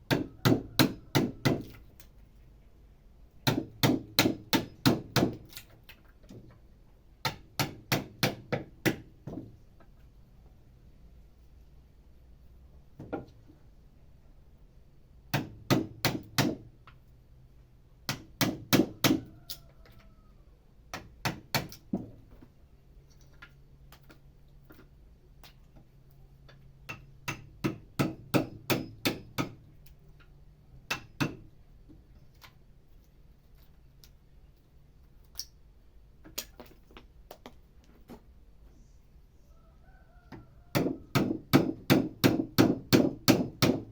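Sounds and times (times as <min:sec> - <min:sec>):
hammer striking wood chisel: 0:00.1 - 0:01.7, 0:03.4 - 0:05.5, 0:07.2 - 0:09.4, 0:15.3 - 0:16.7, 0:18.1 - 0:19.2, 0:20.9 - 0:21.8, 0:26.8 - 0:29.6, 0:30.9 - 0:31.5, 0:40.7 - 0:43.9.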